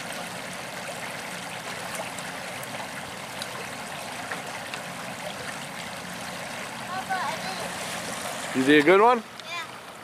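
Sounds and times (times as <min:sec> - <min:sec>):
stream water rushing: 0:00.0 - 0:10.0.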